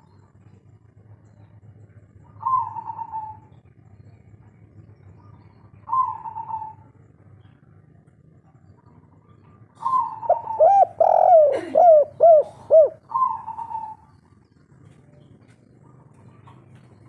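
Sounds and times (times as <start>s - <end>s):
dove cooing: 2.2s - 3.5s, 5.8s - 6.9s, 9.4s - 14.2s.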